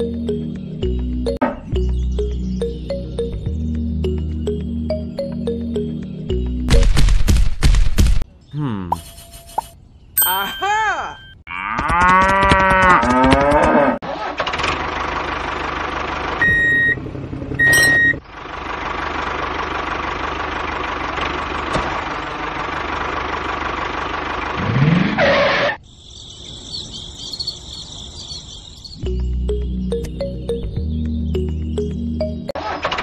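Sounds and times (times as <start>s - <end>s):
short beeps: 8.9s - 11.4s, 17.6s - 18.2s
cow mooing: 11.5s - 14.0s.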